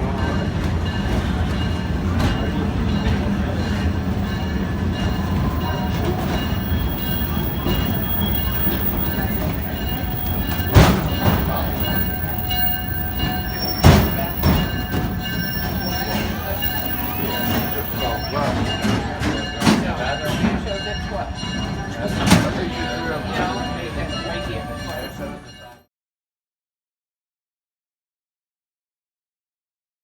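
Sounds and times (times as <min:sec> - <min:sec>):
train wheels rumbling on rail: 0:00.0 - 0:25.7
faint wheel squeal: 0:05.2 - 0:18.6.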